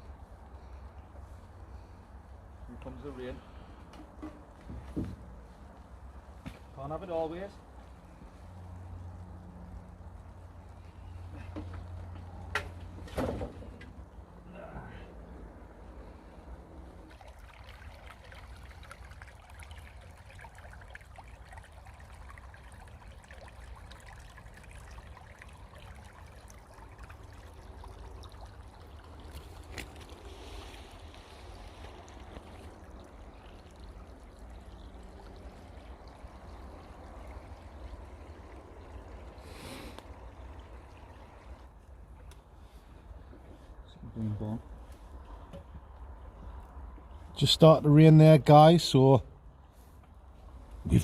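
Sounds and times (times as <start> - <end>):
low steady rumble: 0.0 - 51.0
rain patter: 5.3 - 13.0, 15.5 - 49.2.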